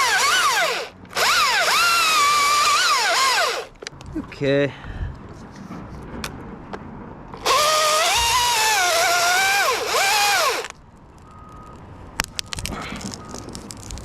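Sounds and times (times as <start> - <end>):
chainsaw cutting at high revs: 0.0 - 3.7, 7.4 - 10.7.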